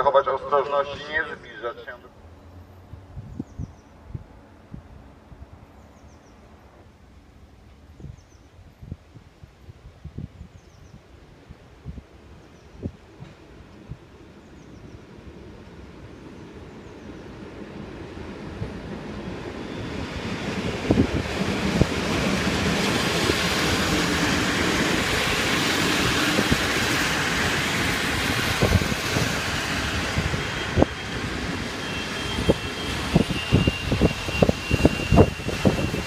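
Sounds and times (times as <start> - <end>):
train rumbling past: 0.0 - 9.9, 11.1 - 36.0
faint high squeal: 30.4 - 36.0.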